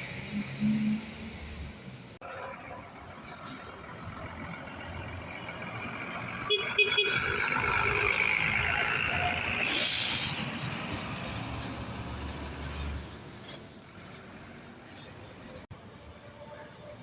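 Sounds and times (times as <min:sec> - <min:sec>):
bus engine running: 0:00.0 - 0:16.9.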